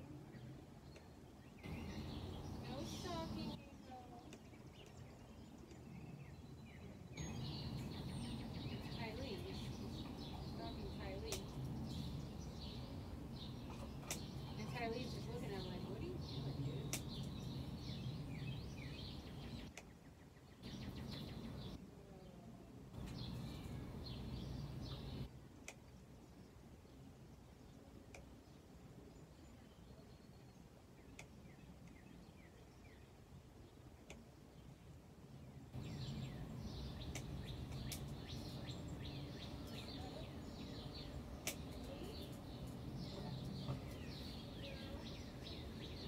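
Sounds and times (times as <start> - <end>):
low outdoor rumble: 0.0 - 19.7, 20.6 - 25.4, 34.0 - 46.0
small birds chirping: 0.0 - 46.0
faint sharp clicks: 14.0 - 14.3, 16.9 - 17.4, 25.6 - 25.8, 37.0 - 38.4, 41.4 - 42.8.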